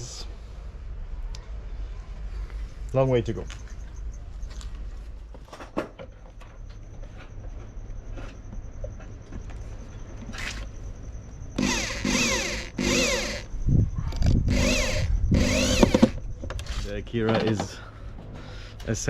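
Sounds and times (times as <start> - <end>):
power drill whining: 11.6 - 13.5, 14.2 - 16.2.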